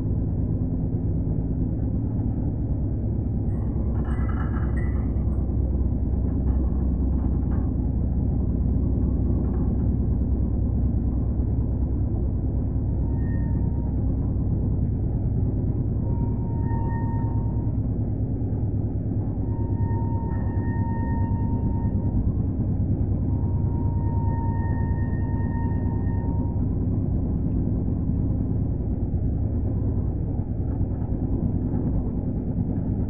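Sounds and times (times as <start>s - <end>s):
train coach rumbling on track: 0.0s - 33.0s.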